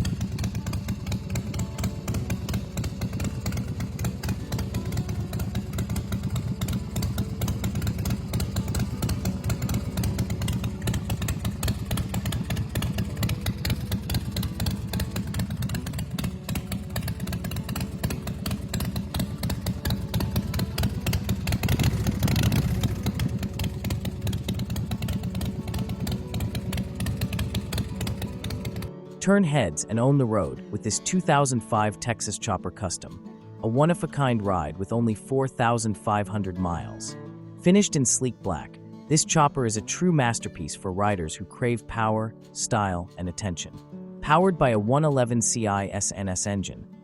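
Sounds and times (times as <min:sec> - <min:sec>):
motorcycle engine idling and revving: 0:00.0 - 0:35.0, 0:35.7 - 0:37.2, 0:37.8 - 0:42.0.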